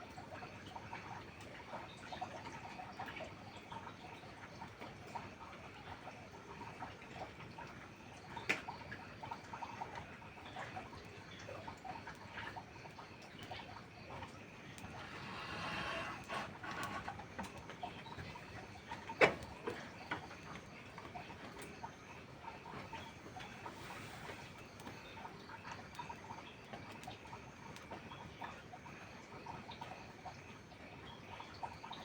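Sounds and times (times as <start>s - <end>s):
wood fire crackling: 14.5s - 26.3s
steady hiss: 14.7s - 17.2s, 22.7s - 25.3s.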